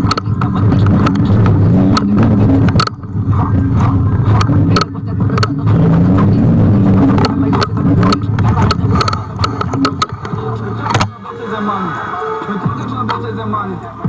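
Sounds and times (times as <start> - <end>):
scooter rattling over bumps: 0.0 - 11.2
electric scooter hum: 0.0 - 14.0.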